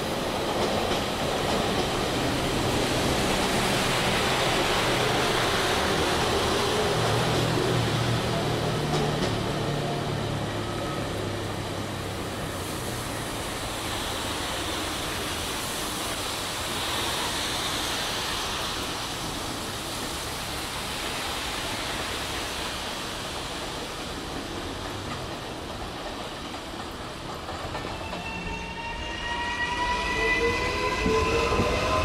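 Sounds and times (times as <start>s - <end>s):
train low hum: 0.0s - 32.0s.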